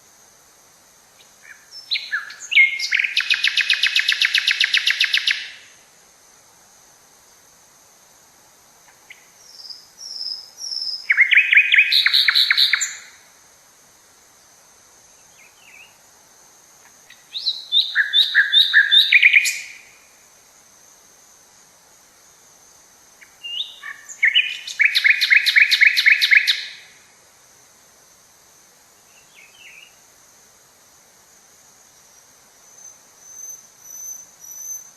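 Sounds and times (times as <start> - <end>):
songbird chirping: 1.1 - 5.8, 8.8 - 13.4, 14.2 - 20.2, 23.1 - 27.1, 28.9 - 30.0, 32.0 - 34.9
faint bird calls: 23.2 - 27.0.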